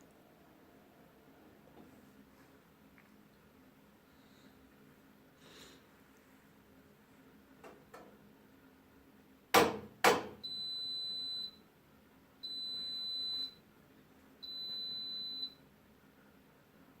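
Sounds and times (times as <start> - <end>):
washing machine clicks: 9.6 - 10.4
washing machine beeps: 10.4 - 11.7, 12.4 - 13.6, 14.4 - 15.6.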